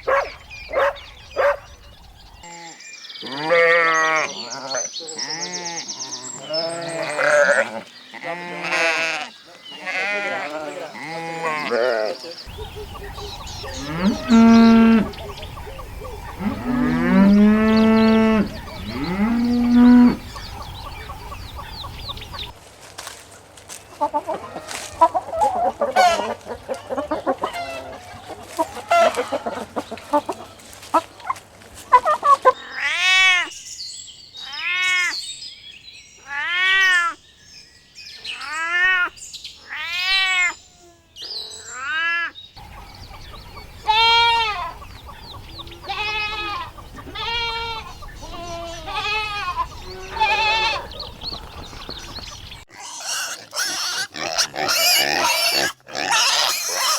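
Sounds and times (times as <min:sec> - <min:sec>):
short bleats: 0:02.4 - 0:05.8, 0:06.4 - 0:12.2, 0:43.8 - 0:44.7, 0:45.8 - 0:50.8
drawn-out animal calls: 0:02.4 - 0:22.6, 0:42.6 - 0:56.9
chickens clucking: 0:12.4 - 0:22.6, 0:23.9 - 0:32.6, 0:42.6 - 0:56.9.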